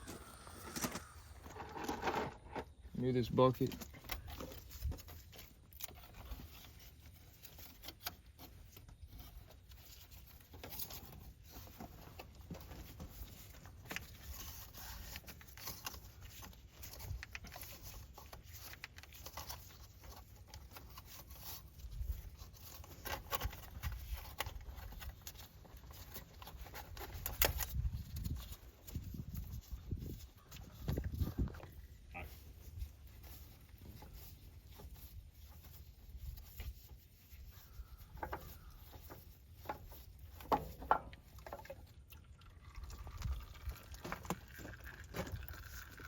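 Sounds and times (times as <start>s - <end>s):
hand tools clicking and scraping: 0.0s - 2.8s.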